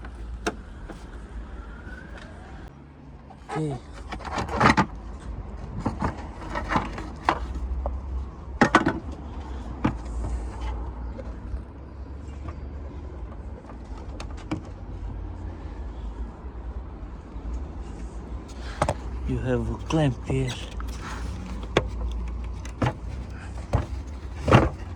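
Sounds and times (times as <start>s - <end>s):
plastic and tool clicks: 19.8s - 24.8s.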